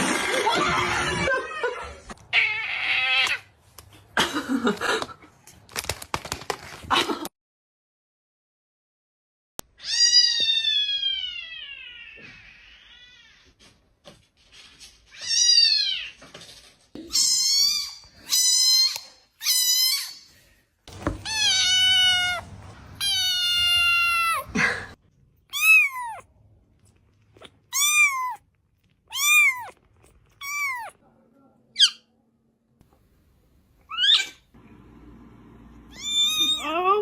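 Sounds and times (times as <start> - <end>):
cat meowing: 2.3 - 3.5, 21.2 - 24.5, 25.5 - 26.3, 27.4 - 28.4, 29.1 - 31.0, 35.9 - 36.8.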